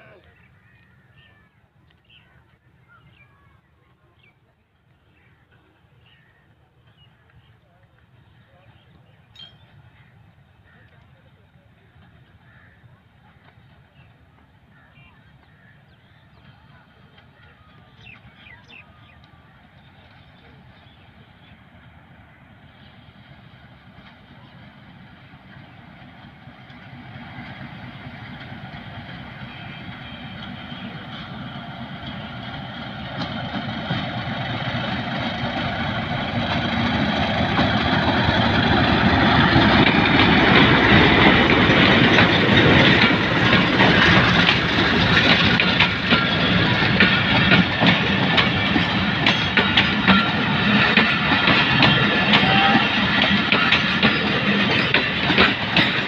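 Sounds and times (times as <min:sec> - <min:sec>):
diesel locomotive engine: 0:05.0 - 0:56.0
wheels clicking over rail joints: 0:31.1 - 0:56.0.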